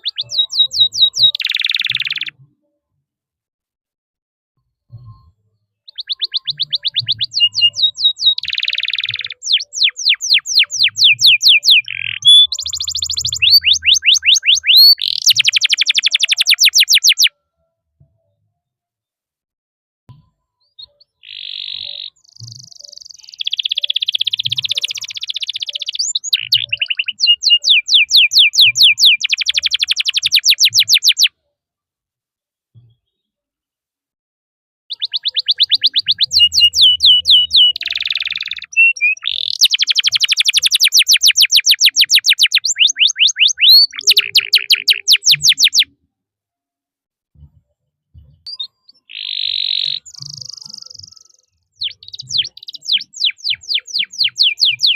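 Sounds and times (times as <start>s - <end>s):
canary singing trills: 0.0s - 2.4s, 5.9s - 17.3s, 20.7s - 31.3s, 34.9s - 45.9s, 48.5s - 54.9s.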